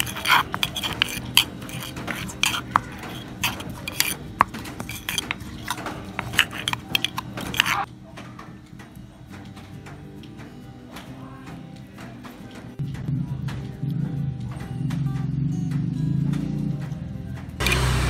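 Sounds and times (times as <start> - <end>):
metal spoon clinking and scraping: 0.0 - 7.9
stone pestle pounding in mortar: 0.0 - 7.9.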